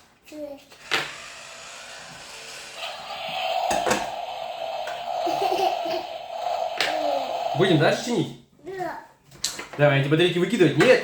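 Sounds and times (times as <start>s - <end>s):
toy car electric hum: 0.8s - 8.1s.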